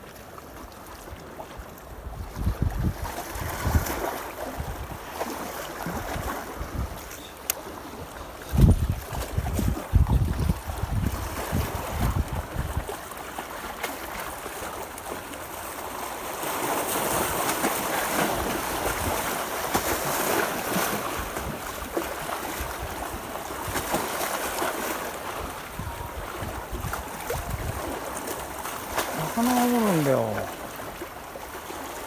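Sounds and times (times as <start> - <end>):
wind on microphone: 2.0 - 5.0, 5.8 - 7.1, 8.4 - 12.9
sea water washing against breakwater: 3.0 - 32.0.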